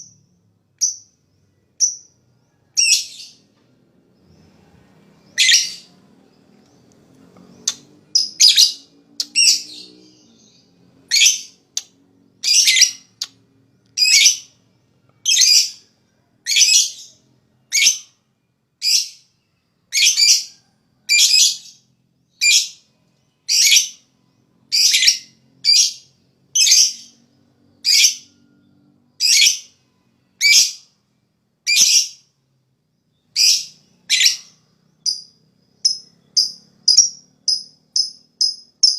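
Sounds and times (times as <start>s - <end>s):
shrill harsh bird calls: 4.2s - 14.6s, 18.8s - 32.4s, 33.1s - 38.9s.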